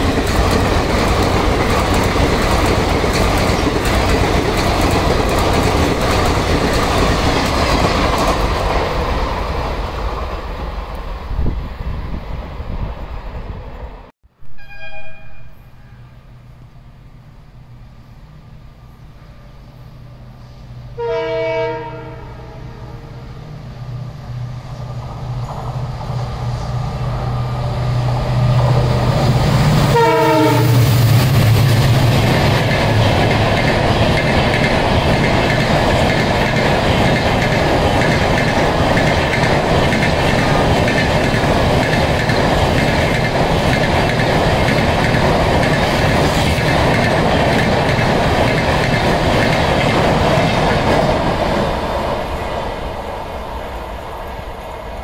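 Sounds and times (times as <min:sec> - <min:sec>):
train coaches rushing and clattering: 0:00.0 - 0:14.0, 0:24.2 - 0:55.0
diesel locomotive engine rumble: 0:00.0 - 0:14.1, 0:15.3 - 0:55.0
train horn: 0:14.5 - 0:16.4, 0:20.4 - 0:23.3, 0:29.8 - 0:31.0.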